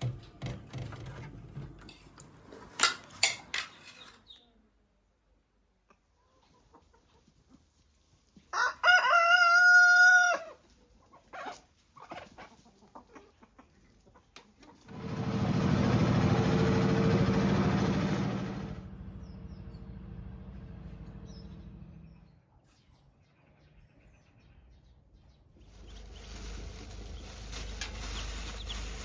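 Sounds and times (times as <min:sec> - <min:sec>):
rooster crowing: 0:08.5 - 0:10.6.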